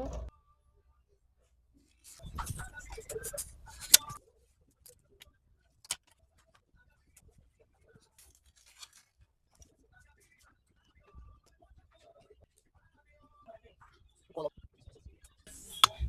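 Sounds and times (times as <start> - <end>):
plastic film crinkling: 8.1 - 9.2.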